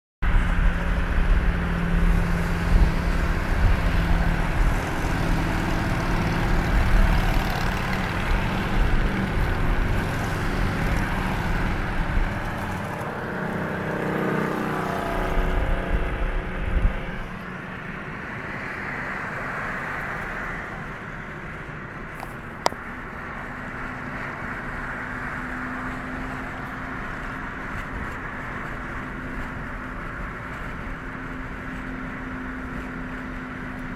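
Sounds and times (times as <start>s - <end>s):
motorcycle engine running: 0.3s - 18.0s.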